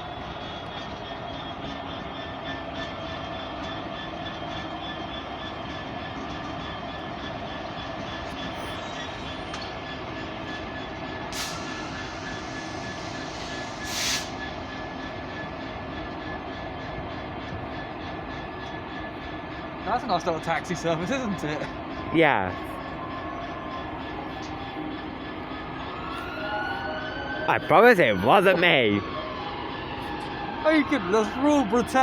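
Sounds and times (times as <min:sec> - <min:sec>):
diesel train running: 0:00.0 - 0:32.0
short hisses: 0:13.8 - 0:14.3.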